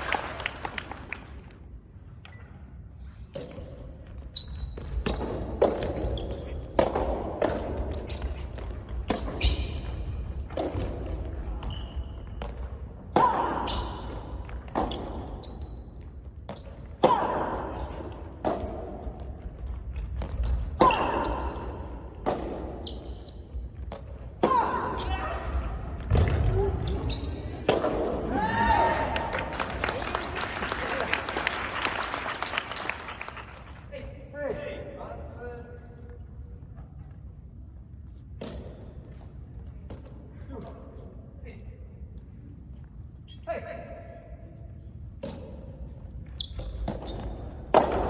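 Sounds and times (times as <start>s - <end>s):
ball bouncing on court: 3.3s - 28.3s, 38.4s - 40.8s, 45.2s - 48.0s
racket hitting tennis ball: 27.6s - 28.2s, 46.8s - 48.0s.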